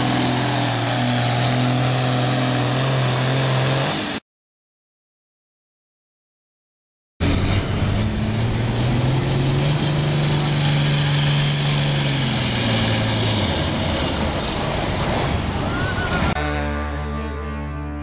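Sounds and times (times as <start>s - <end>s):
tractor diesel engine under load: 0.0s - 4.2s, 7.2s - 16.6s.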